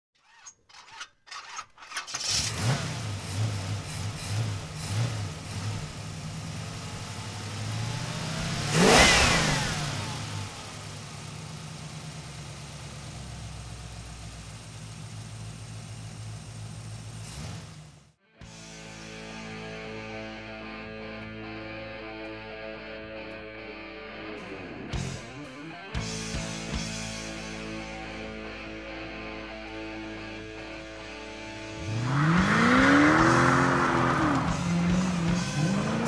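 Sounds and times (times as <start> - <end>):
car engine revving: 2.1 - 18.1, 31.5 - 36.0
car passing loudly: 31.8 - 36.0.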